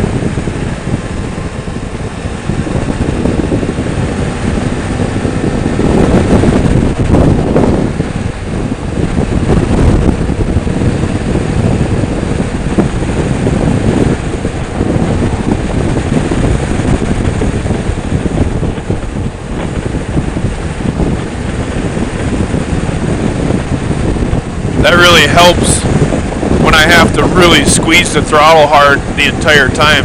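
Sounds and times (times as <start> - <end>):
motorcycle engine running: 0.0 - 30.0
wind buffeting microphone: 0.0 - 30.0.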